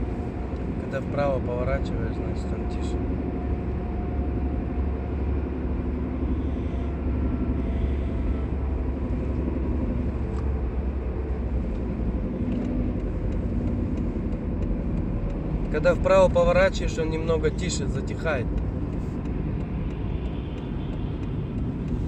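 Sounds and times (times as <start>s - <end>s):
car interior drone: 0.0s - 22.0s
road and tyre noise: 0.0s - 22.0s.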